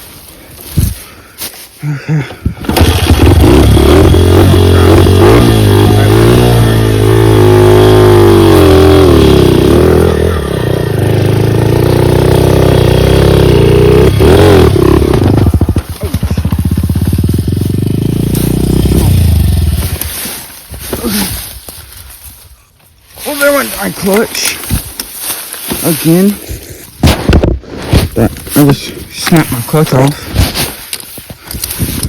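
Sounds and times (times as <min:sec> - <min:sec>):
dirt bike engine revving: 0:02.6 - 0:20.2.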